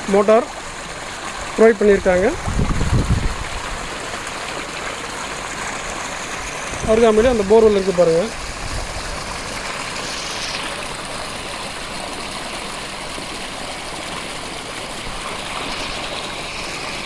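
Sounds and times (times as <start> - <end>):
electric pump running: 0.0 - 17.0
water gushing from pipe: 0.0 - 17.0.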